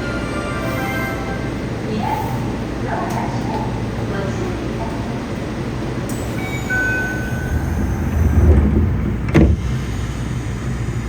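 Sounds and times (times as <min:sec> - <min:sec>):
subway train rumbling: 0:00.0 - 0:11.0
high whining tones: 0:06.2 - 0:11.0.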